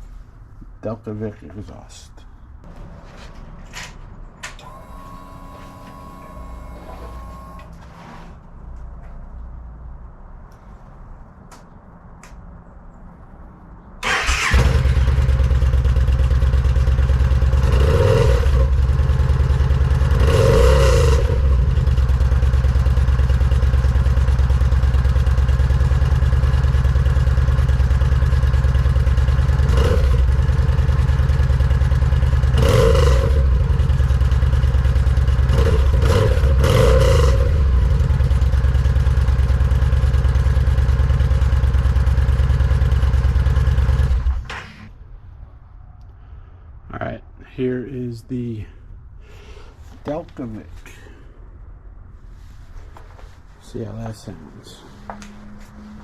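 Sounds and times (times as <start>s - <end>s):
motorcycle engine idling: 14.1s - 20.3s, 21.0s - 44.5s.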